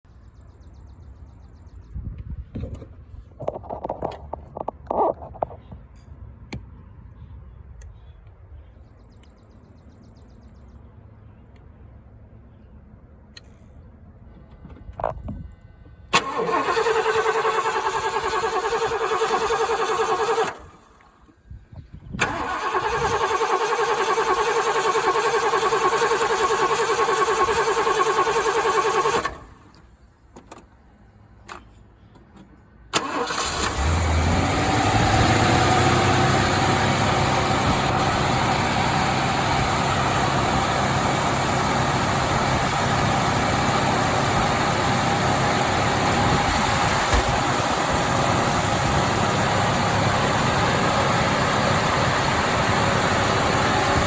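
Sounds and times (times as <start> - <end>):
starter motor cranking: 16.2 - 20.8, 22.2 - 29.5, 33.0 - 35.2.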